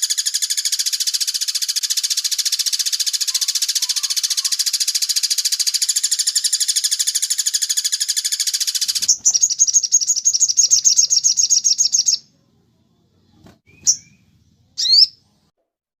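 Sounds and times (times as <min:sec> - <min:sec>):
songbird trilling: 0:00.0 - 0:12.3, 0:14.8 - 0:15.2.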